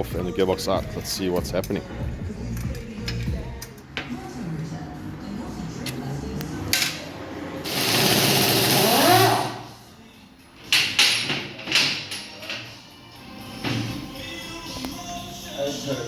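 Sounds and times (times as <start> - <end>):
power tool running: 7.7 - 9.6.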